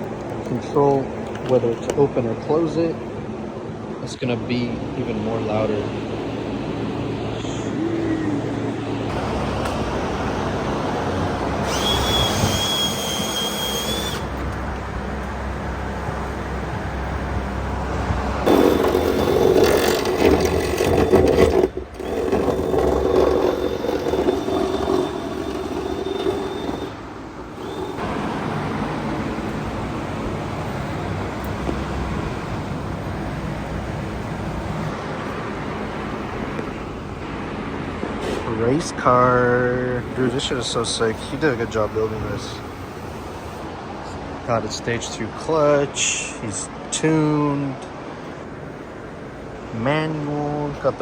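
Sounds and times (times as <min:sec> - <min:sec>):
mechanical hum: 0:00.0 - 0:50.0
power tools whirring: 0:10.9 - 0:15.3, 0:18.4 - 0:30.5, 0:40.0 - 0:44.2
thin high whine: 0:18.5 - 0:28.2.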